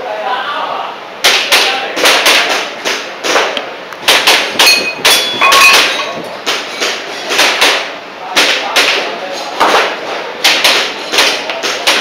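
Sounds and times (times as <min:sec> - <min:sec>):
metallic ringing: 0:04.6 - 0:06.4.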